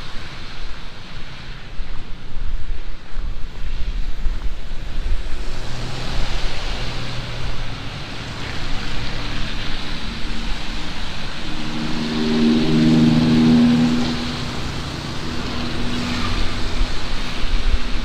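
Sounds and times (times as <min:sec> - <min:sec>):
heavy rain falling: 0:00.0 - 0:18.0
wind rumbling on microphone: 0:00.0 - 0:18.0
vehicle engine approaching: 0:04.8 - 0:18.0.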